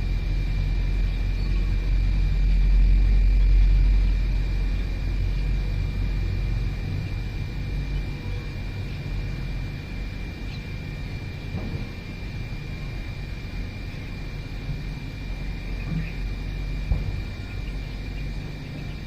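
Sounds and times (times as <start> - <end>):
thin steady high tone: 0.0 - 11.5
low rumble: 0.0 - 19.0.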